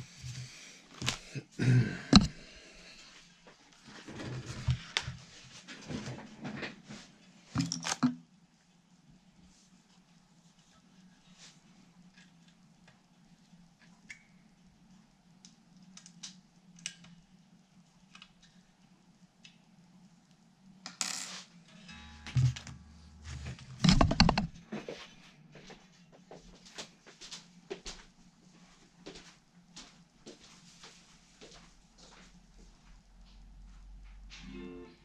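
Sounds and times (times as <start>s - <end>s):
low hum: 21.7s - 24.6s
electric guitar gear handling clicks: 22.2s - 22.8s, 23.8s - 24.6s.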